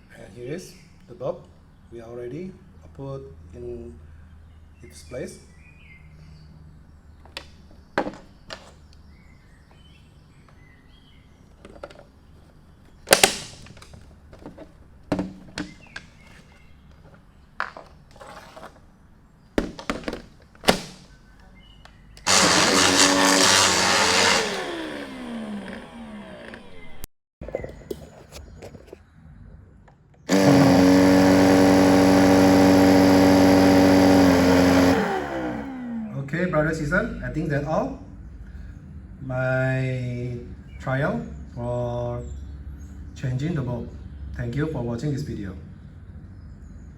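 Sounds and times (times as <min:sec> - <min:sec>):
plastic clicks and knocks: 0:19.6 - 0:20.9
vacuum motor whining: 0:22.2 - 0:27.0, 0:30.3 - 0:36.3.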